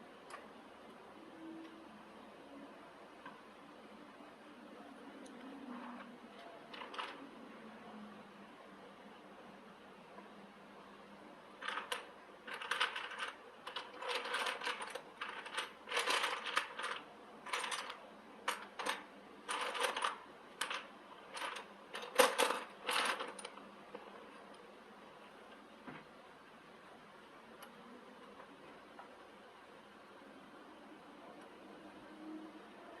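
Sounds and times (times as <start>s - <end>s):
metallic clinking and rattling: 11.6s - 23.6s.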